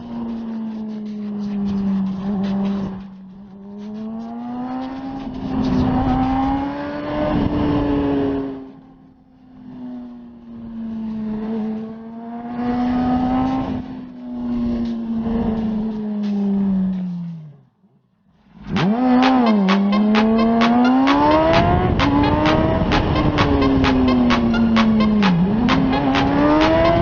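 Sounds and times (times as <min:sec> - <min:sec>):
motorcycle engine revving: 0:18.7 - 0:19.7.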